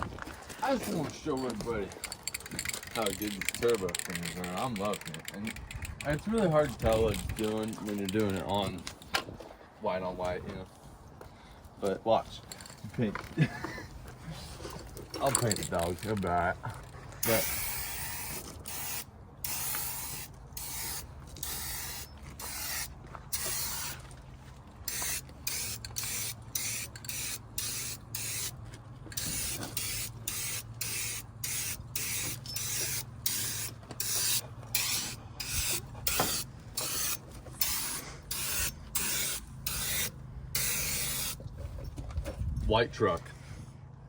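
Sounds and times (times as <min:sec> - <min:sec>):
spray can hissing bursts: 0:17.2 - 0:24.0, 0:24.9 - 0:28.6, 0:29.2 - 0:41.4.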